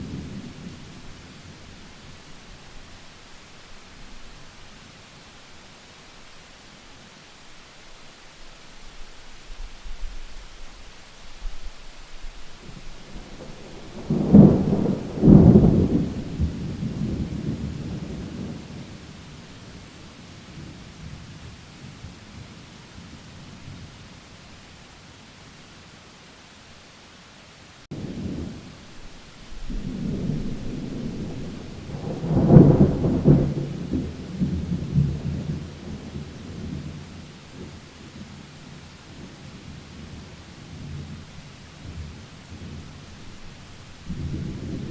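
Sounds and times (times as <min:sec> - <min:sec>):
rain hiss: 0:00.0 - 0:44.9
thunder clap and rumble: 0:12.7 - 0:19.2, 0:29.5 - 0:38.5, 0:39.1 - 0:44.9.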